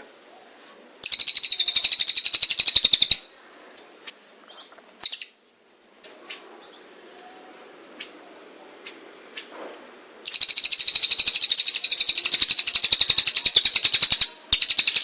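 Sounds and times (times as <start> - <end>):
bird chirps and calls: 1.0 - 3.3, 4.5 - 5.5, 6.3 - 6.9, 10.2 - 15.0
songbird rapid trill: 1.0 - 3.3, 10.2 - 15.0.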